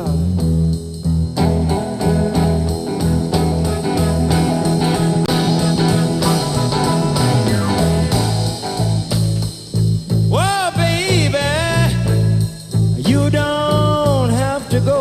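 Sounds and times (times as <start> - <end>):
bass line: 0.0 - 15.0
blues guitar: 0.0 - 15.0
steady beat: 1.3 - 13.3.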